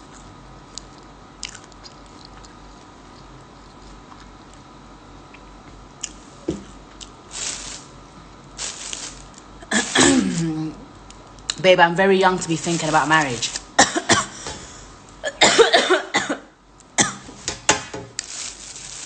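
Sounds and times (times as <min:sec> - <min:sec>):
person chewing food: 0:00.1 - 0:04.7
rustling bursts: 0:07.3 - 0:07.9, 0:08.6 - 0:10.4, 0:12.4 - 0:13.8, 0:18.2 - 0:19.0.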